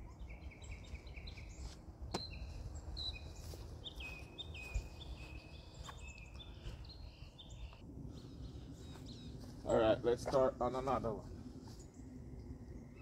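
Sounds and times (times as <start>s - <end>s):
small birds chirping: 0.0s - 13.0s
low outdoor rumble: 4.7s - 13.0s.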